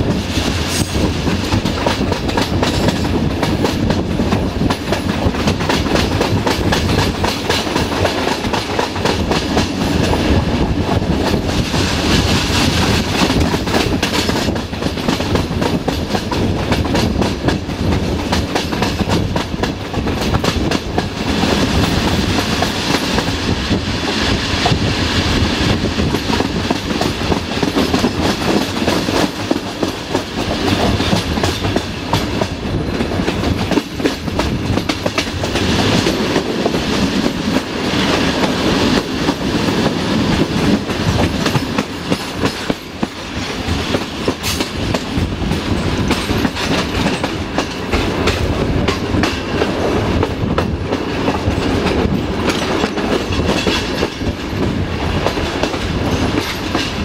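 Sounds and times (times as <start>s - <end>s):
clickety-clack over rail joints: 0.0s - 57.0s
train wheels rolling on rails: 0.0s - 57.0s.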